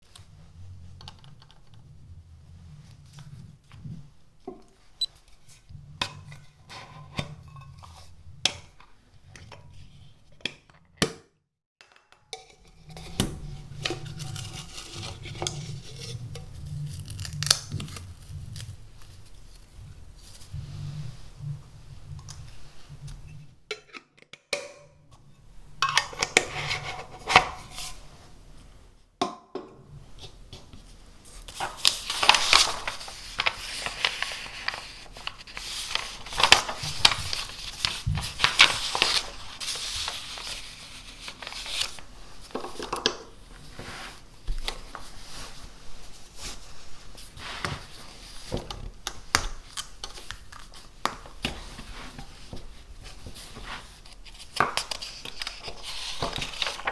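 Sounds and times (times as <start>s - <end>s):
paper rustling: 13.1s - 20.6s, 30.8s - 48.7s, 49.3s - 56.9s.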